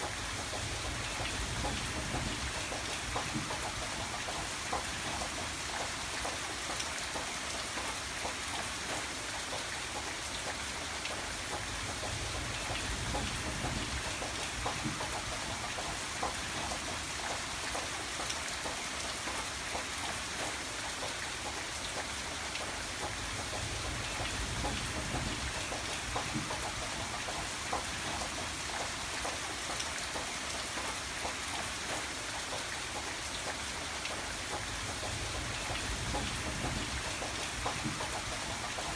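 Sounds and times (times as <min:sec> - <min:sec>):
raindrops ticking: 0:00.0 - 0:38.9
rain hissing: 0:33.8 - 0:38.9.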